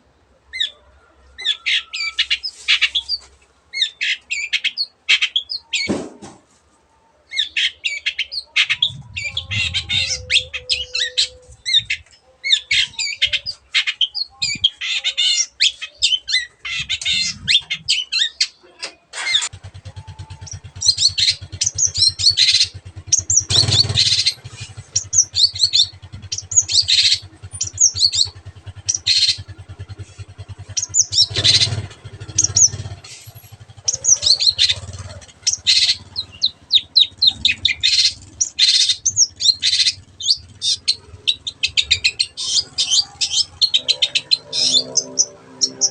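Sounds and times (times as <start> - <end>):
shrike chattering song: 7.3 - 45.9
low engine drone: 8.7 - 12.0, 19.4 - 45.9.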